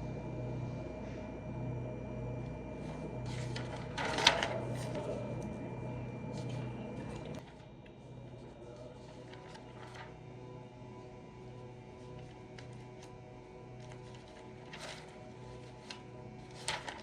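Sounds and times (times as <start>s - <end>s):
appliance humming: 0.0s - 17.0s.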